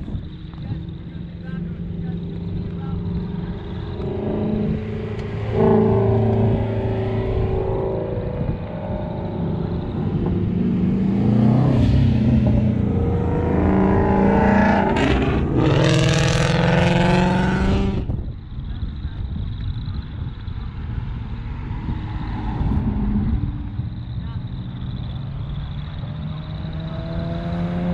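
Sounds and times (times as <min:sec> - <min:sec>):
car engine revving: 0:00.0 - 0:27.9.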